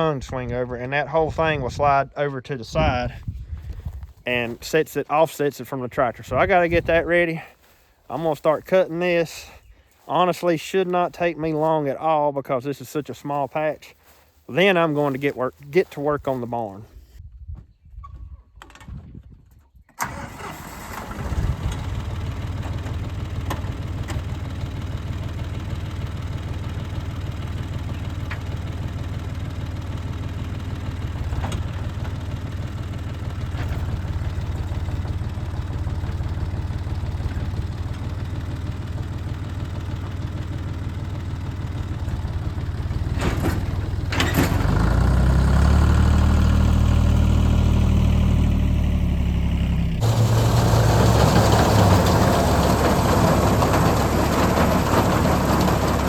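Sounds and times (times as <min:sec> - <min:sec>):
tractor engine running and revving: 0:20.0 - 0:56.0.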